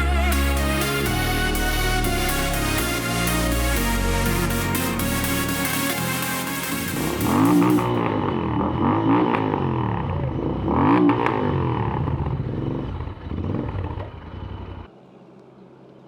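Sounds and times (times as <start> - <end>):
motorcycle engine revving: 6.8 - 14.9.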